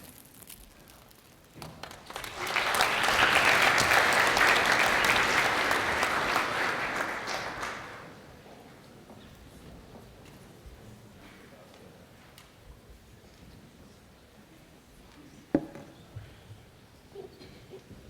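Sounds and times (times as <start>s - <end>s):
audience applauding: 1.8s - 8.2s.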